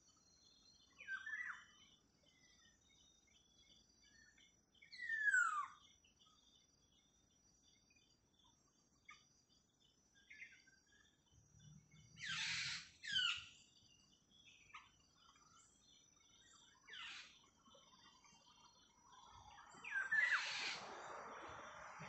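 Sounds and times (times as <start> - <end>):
high insect whine: 9.0 - 22.0
harsh bird calls: 12.2 - 13.5, 19.7 - 21.2
soft rushing hiss: 19.1 - 22.0.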